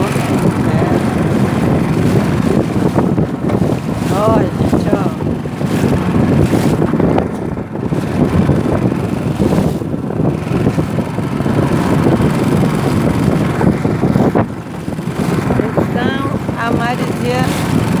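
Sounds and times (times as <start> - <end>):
outboard motor running: 0.0 - 18.0
wind buffeting microphone: 0.0 - 18.0.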